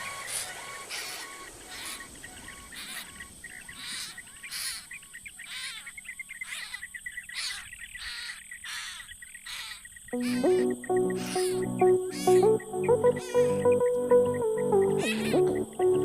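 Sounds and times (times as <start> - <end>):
birds harsh chirping calls: 0.0 - 16.0.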